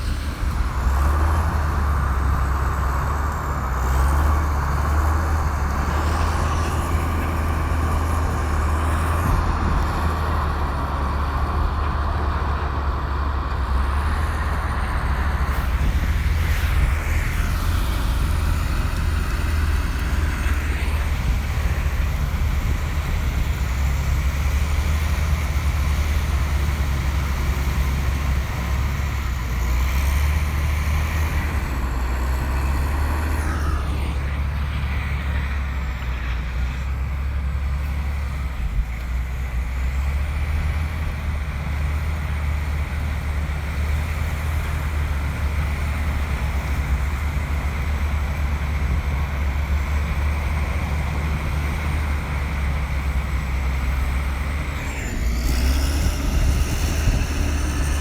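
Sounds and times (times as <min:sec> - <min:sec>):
bulldozer diesel engine rumbling: 0:00.0 - 0:58.0
falling whine: 0:54.1 - 0:58.0.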